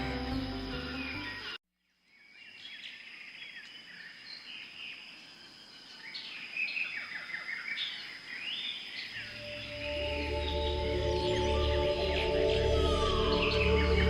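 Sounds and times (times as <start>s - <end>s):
small birds chirping and twittering: 0.0s - 14.0s
thin high tone: 9.3s - 14.0s.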